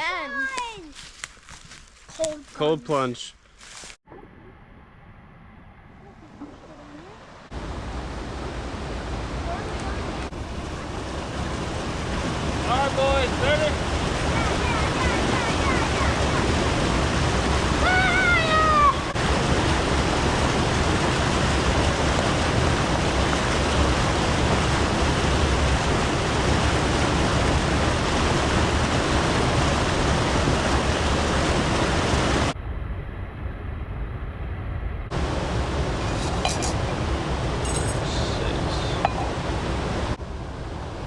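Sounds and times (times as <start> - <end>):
stream and waterfall rushing: 7.2 - 32.6, 35.1 - 41.0
person shouting: 17.8 - 19.1.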